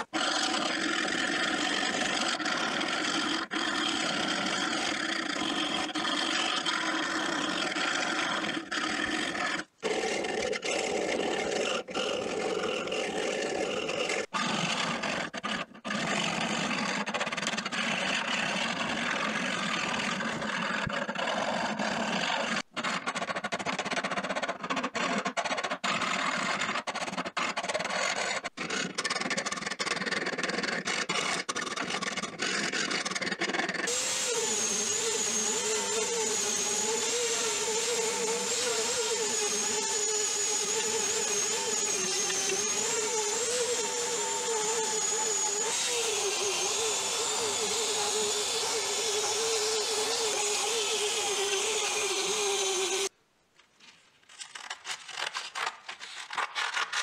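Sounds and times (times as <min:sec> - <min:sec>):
file rasping on metal: 0:33.9 - 0:53.1.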